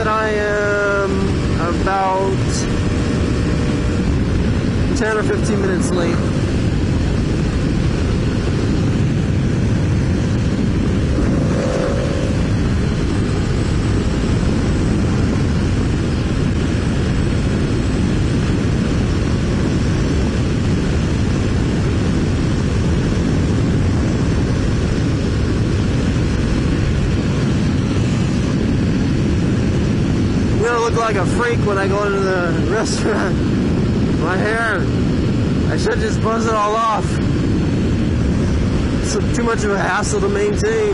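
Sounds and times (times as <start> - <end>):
road noise: 0.0 - 40.9
wind rush: 0.0 - 40.9
motorcycle engine running: 0.8 - 30.0.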